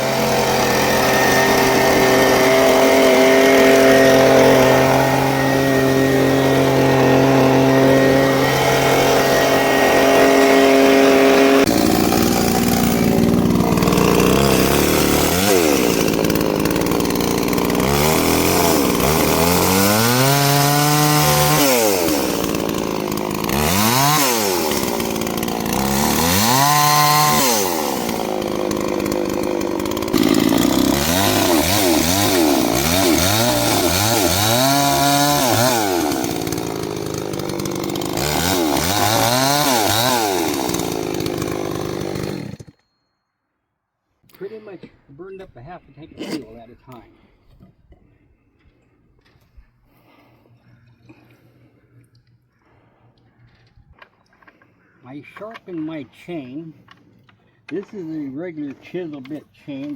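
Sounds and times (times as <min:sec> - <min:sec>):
chainsaw engine revving: 0:00.0 - 0:42.8
chainsaw cutting log: 0:00.0 - 0:42.9, 0:46.1 - 0:47.3, 0:54.0 - 0:59.9.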